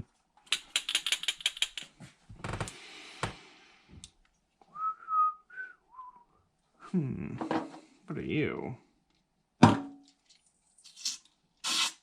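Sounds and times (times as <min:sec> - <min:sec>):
person whistling short notes: 0:04.7 - 0:06.4.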